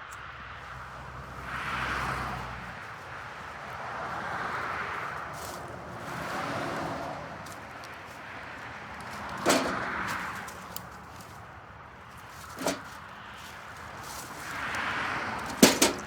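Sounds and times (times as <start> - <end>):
dry wood cracking: 8.6 - 11.4
rustling: 9.0 - 11.4, 12.1 - 14.8, 15.4 - 16.0.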